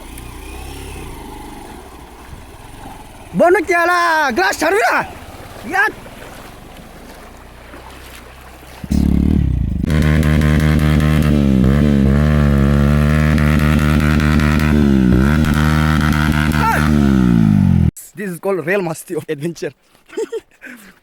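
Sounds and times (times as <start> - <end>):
motorcycle engine revving: 0.0 - 7.7, 8.8 - 17.9.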